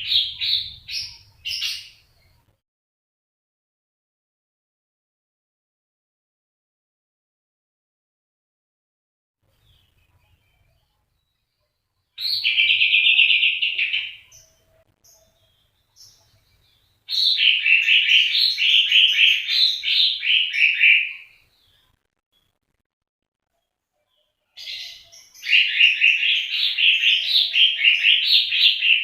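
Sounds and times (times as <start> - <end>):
songbird trilling: 24.6 - 29.0.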